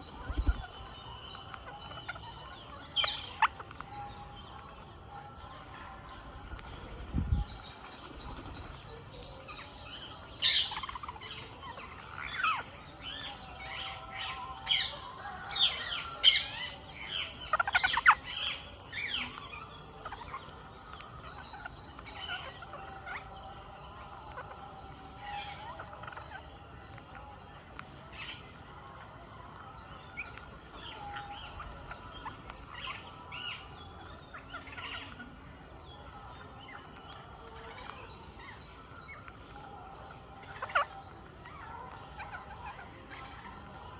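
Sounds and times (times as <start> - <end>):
parakeets screeching: 0.0 - 1.2.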